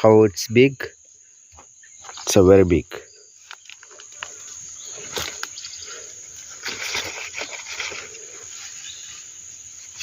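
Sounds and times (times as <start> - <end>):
crickets trilling: 0.0 - 10.0
leaves rustling and snapping: 3.4 - 5.7, 6.4 - 8.8.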